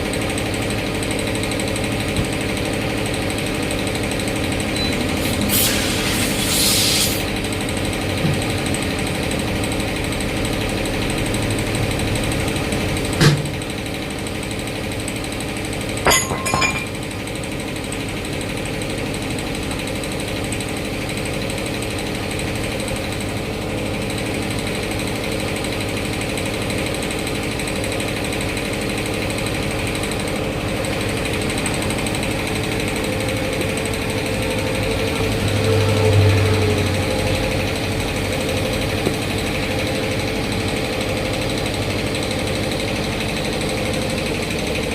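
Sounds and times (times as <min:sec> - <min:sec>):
machine running with rapid rattle: 0:00.0 - 0:05.4, 0:07.2 - 0:16.2, 0:16.8 - 0:35.7, 0:37.5 - 0:44.9
hissing air burst: 0:05.5 - 0:07.3.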